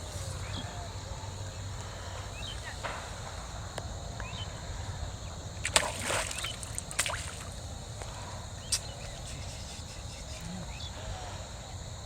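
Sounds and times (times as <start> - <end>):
low outdoor rumble: 0.0 - 12.0
water splashing: 5.6 - 10.4
water sloshing: 5.6 - 10.5.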